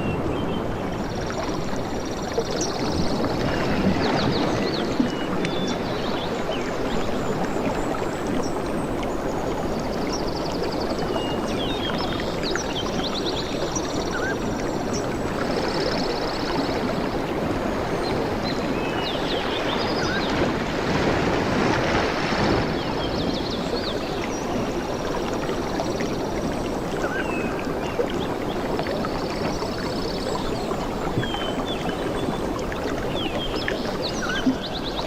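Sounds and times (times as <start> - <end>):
ocean waves washing: 0.0 - 35.0.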